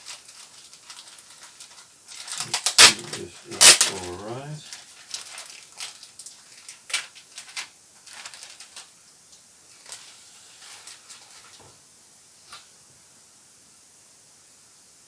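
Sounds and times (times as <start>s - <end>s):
sharp crackle: 0.0s - 8.9s
packaging crinkling and rustling: 0.0s - 11.8s.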